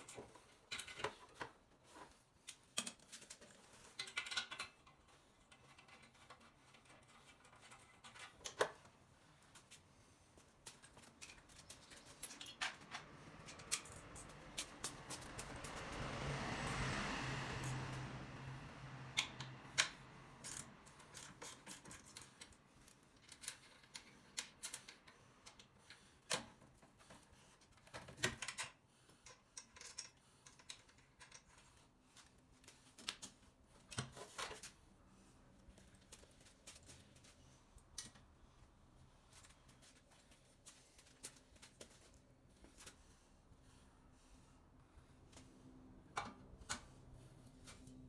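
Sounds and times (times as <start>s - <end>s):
hand tools clicking and tapping: 10.6s - 16.0s
metal parts being handled: 10.7s - 15.7s.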